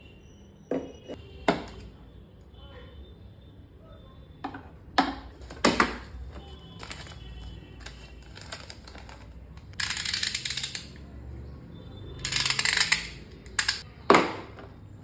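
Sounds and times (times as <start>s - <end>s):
hard plastic pieces clicking: 7.8s - 11.0s, 12.2s - 13.8s
plastic pieces rattling: 7.8s - 11.0s.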